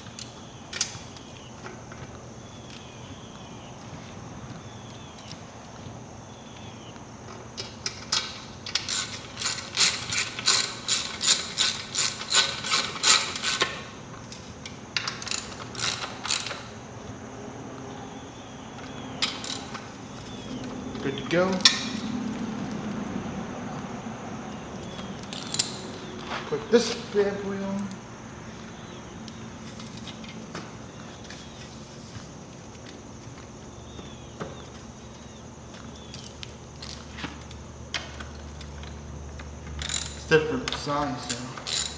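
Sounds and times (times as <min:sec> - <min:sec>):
steady background noise: 0:00.0 - 0:41.9
ratchet wrench clicking: 0:07.9 - 0:13.8, 0:15.0 - 0:16.6, 0:19.2 - 0:19.8, 0:25.2 - 0:25.9, 0:39.8 - 0:41.9.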